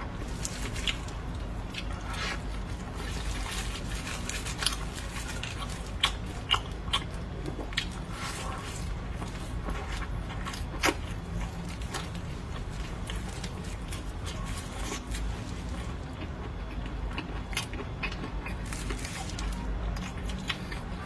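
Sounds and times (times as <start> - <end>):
crisp chewing crunches: 0.2 - 21.0.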